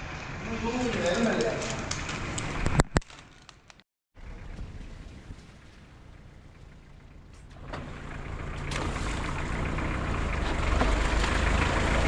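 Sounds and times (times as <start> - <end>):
vehicle engine humming: 4.2 - 12.0.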